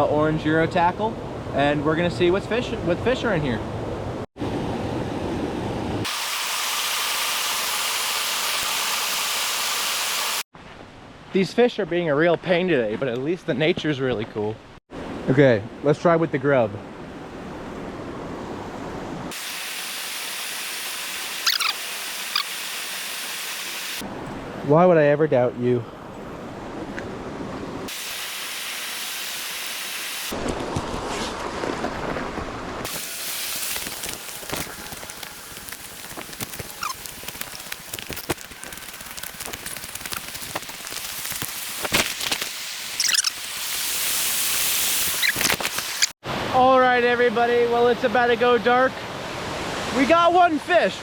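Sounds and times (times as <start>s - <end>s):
high-pitched chirps: 21.4s - 22.6s, 36.7s - 37.0s, 42.9s - 43.4s.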